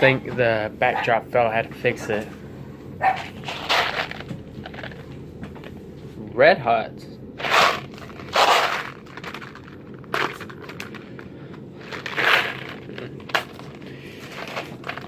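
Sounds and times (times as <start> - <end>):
candy packaging crackling: 3.1 - 5.8, 7.4 - 15.0.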